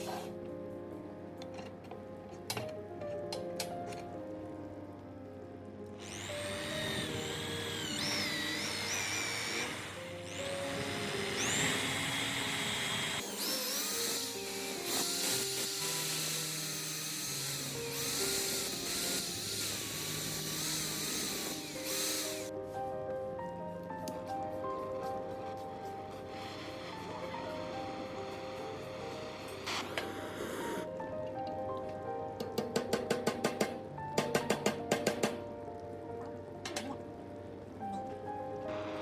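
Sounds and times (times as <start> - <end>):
background music: 0.0 - 39.0
electric power tool whining: 6.0 - 22.5, 26.2 - 30.9.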